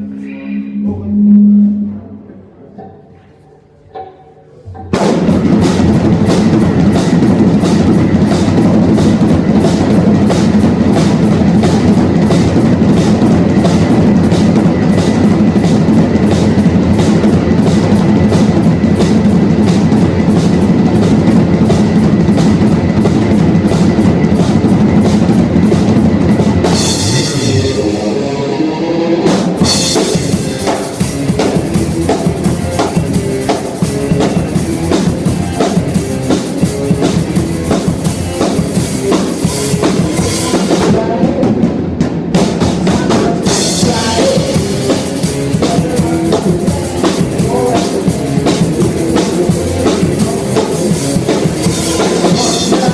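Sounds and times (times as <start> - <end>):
drum kit: 3.9 - 52.9
cymbals: 4.1 - 41.0
rock band playing loud: 4.8 - 52.9.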